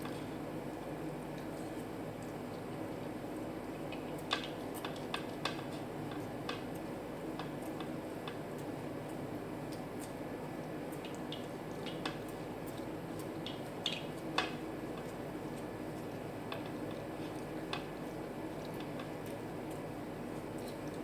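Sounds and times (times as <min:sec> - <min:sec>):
wet squishing of eating: 0:08.6 - 0:21.0.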